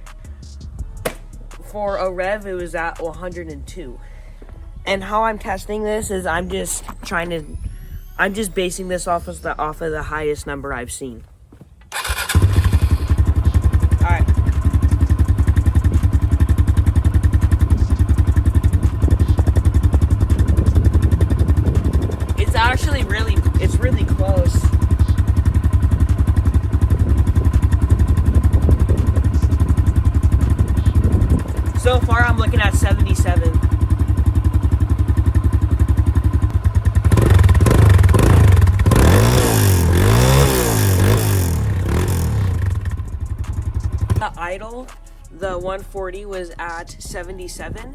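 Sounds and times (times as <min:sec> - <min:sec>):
dirt bike idling: 0:00.0 - 0:07.6, 0:11.5 - 0:47.9.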